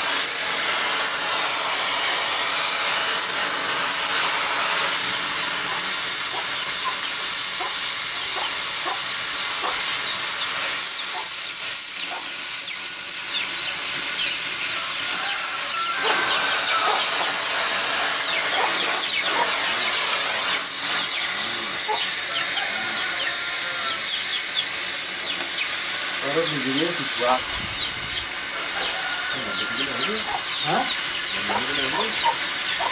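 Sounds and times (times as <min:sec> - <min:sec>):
cutting torch hissing: 0:00.0 - 0:32.9
molten metal crackling: 0:00.1 - 0:22.4.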